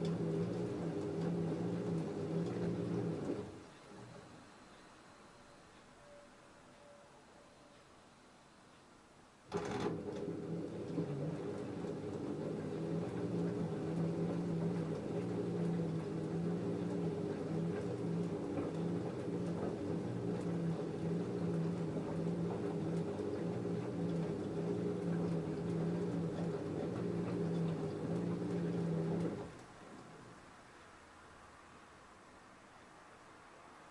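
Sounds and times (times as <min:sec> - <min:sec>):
washing machine motor hum: 0:00.0 - 0:05.6, 0:09.5 - 0:30.9.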